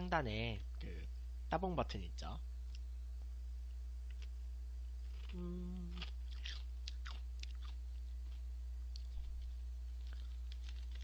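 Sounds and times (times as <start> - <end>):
closed-mouth hum: 0.0 - 11.0
person chewing crunchy crackers: 5.0 - 11.0.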